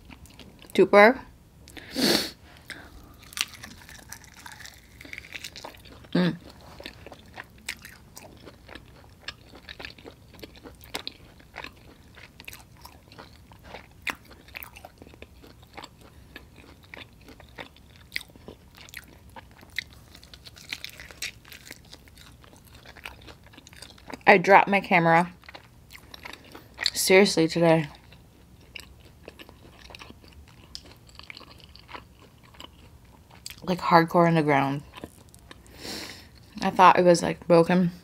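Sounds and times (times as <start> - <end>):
wet chewing and lip smacks: 2.6 - 24.3, 28.0 - 33.6.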